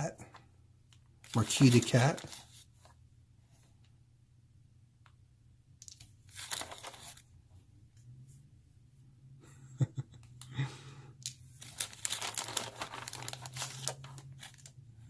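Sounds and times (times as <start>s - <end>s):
plastic packaging rustling: 1.2s - 2.9s, 6.2s - 7.2s, 11.5s - 14.8s
packaging tearing: 1.3s - 2.6s, 6.3s - 7.2s, 11.6s - 14.7s.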